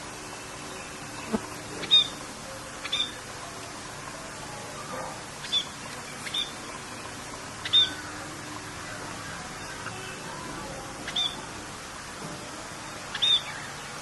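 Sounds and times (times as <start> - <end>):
steady rain hiss: 0.0 - 14.0
birds chirping: 0.1 - 14.0.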